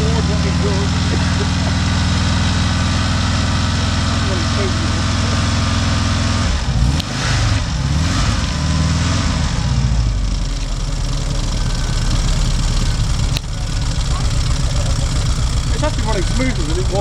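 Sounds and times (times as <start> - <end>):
van engine revving unevenly: 0.0 - 17.0.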